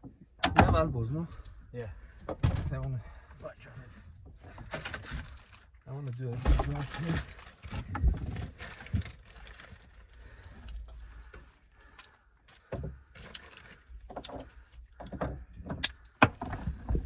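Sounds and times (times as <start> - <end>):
tools and parts clattering: 0.4 - 3.4, 4.3 - 17.0.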